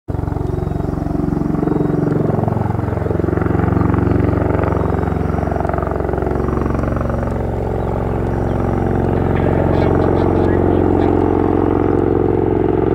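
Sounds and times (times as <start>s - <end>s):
aircraft rotors beating: 0.1s - 12.9s
low droning hum: 0.1s - 12.9s.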